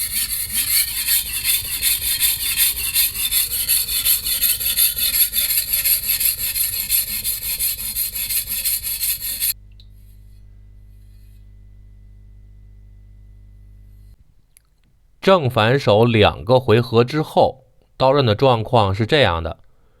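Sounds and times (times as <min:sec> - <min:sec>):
knife scraping on whetstone: 0:00.0 - 0:09.6
faint steady hum: 0:06.8 - 0:15.3.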